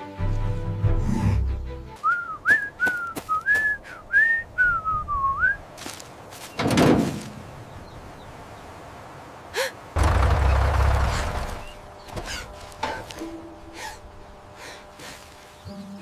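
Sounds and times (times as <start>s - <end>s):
person whistling a tune: 2.0s - 5.6s.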